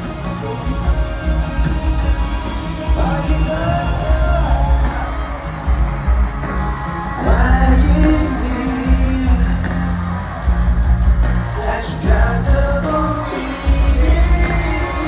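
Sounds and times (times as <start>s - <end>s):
crowd yelling: 0.0s - 15.0s
heavy bass beat: 1.0s - 15.0s
man singing pop ballad: 2.9s - 5.3s, 6.8s - 10.3s, 11.4s - 15.0s.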